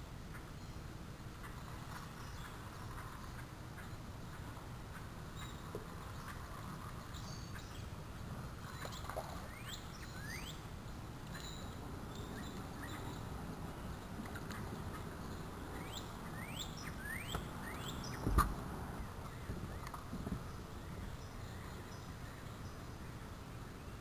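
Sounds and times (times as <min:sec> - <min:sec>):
low background rumble: 0:00.0 - 0:24.0
birds whistling: 0:08.8 - 0:10.6, 0:14.9 - 0:18.5.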